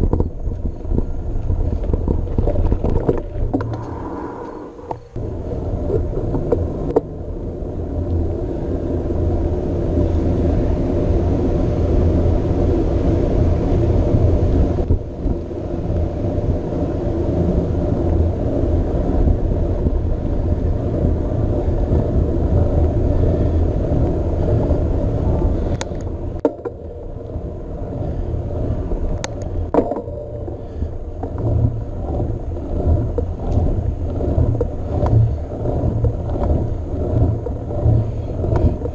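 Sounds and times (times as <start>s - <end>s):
mountain bike riding on path: 0.0s - 38.9s
wind on microphone: 0.0s - 38.9s
bike clicks: 25.3s - 27.0s, 29.1s - 38.9s.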